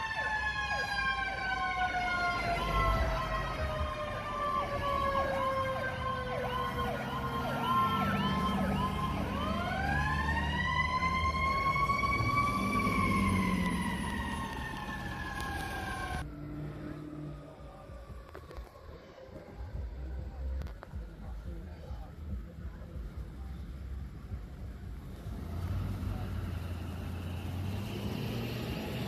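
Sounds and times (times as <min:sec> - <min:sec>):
siren yelping: 0:00.0 - 0:16.3
siren wailing: 0:00.0 - 0:20.0
truck engine rumble: 0:00.0 - 0:29.0.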